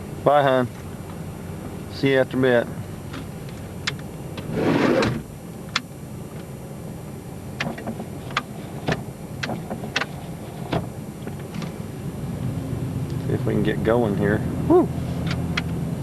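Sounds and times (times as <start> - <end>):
minivan engine idling: 0.0 - 16.0
car door shutting: 3.9 - 6.5.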